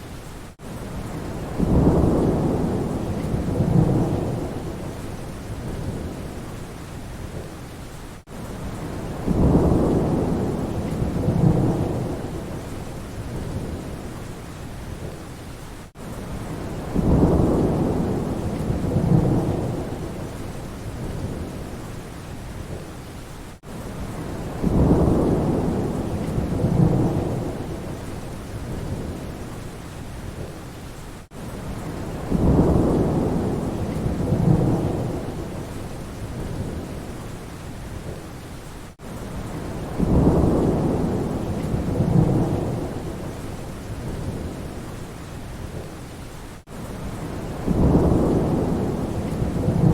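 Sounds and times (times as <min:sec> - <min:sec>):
steady rain: 0:00.0 - 0:49.9
rolling thunder: 0:01.1 - 0:06.4, 0:08.8 - 0:14.1, 0:16.3 - 0:21.8, 0:24.0 - 0:29.4, 0:31.7 - 0:37.1, 0:39.4 - 0:44.8, 0:47.0 - 0:49.9.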